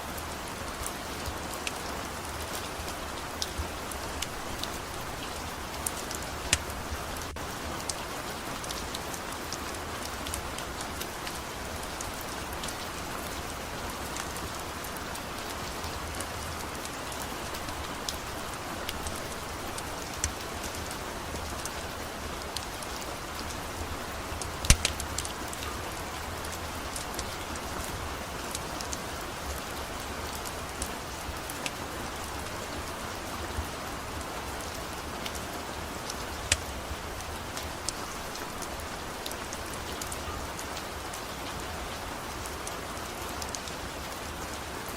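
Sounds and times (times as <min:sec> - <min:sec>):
steady rain falling: 0:00.0 - 0:44.9
sharp clicks and pops: 0:24.6 - 0:25.3.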